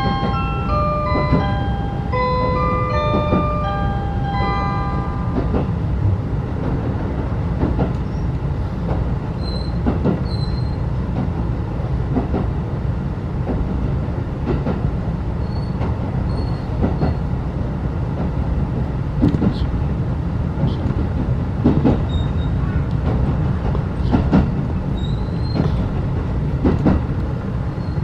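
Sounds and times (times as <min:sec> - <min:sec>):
train coach interior rumble: 0:00.0 - 0:28.0
high wheel squeals: 0:09.4 - 0:10.8, 0:25.0 - 0:25.8, 0:27.7 - 0:28.0.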